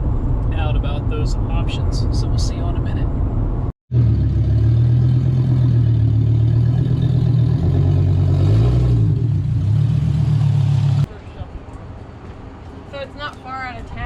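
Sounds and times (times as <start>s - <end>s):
loud engine droning: 3.9s - 11.1s.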